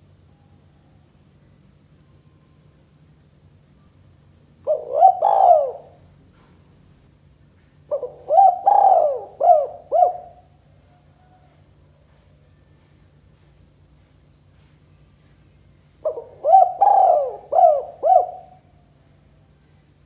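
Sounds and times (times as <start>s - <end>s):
dove cooing: 4.6s - 6.5s, 7.9s - 10.4s, 16.0s - 18.6s.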